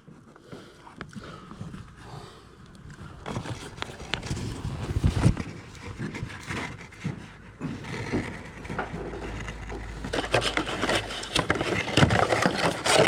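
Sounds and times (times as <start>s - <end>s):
packaging knocks and scraping: 3.0s - 13.0s
packaging rustling: 8.4s - 13.0s.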